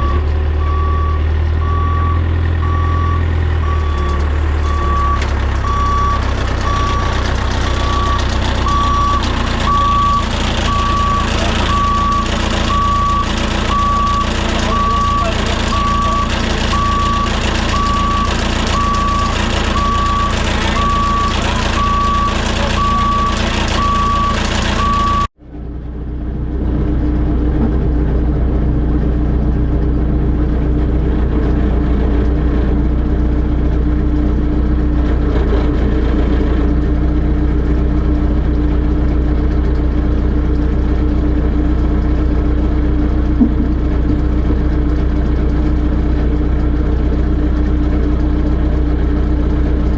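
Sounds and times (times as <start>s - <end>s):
reversing alarm beeping: 0.0s - 25.3s
diesel engine running: 0.0s - 49.9s.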